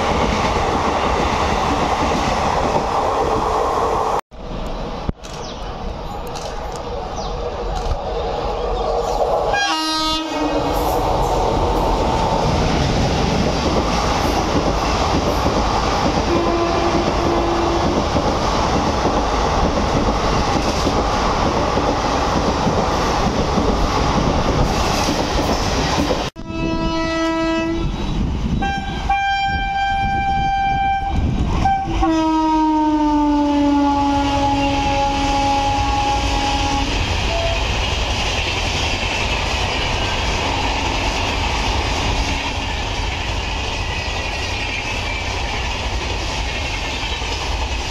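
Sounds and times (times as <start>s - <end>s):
train coaches rushing and clattering: 0.0s - 47.9s
multi-tone locomotive horn: 9.5s - 11.0s, 16.3s - 18.0s, 26.4s - 37.7s
train horn blast: 9.5s - 11.0s, 16.3s - 18.0s, 26.4s - 28.0s, 28.6s - 37.7s.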